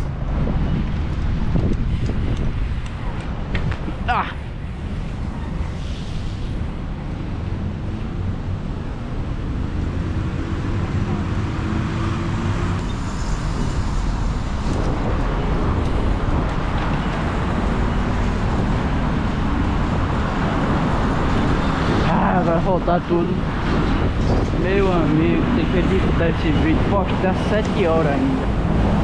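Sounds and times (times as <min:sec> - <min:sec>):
wind and tyres rumbling: 0:00.0 - 0:29.0
motor vehicle engine passing: 0:04.9 - 0:15.2.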